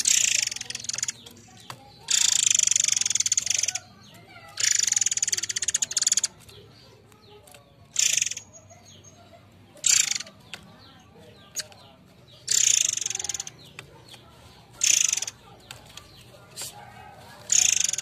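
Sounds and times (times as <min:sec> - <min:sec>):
bird giving buzzy rattling calls: 0:00.0 - 0:06.7, 0:07.3 - 0:16.8, 0:17.4 - 0:18.0.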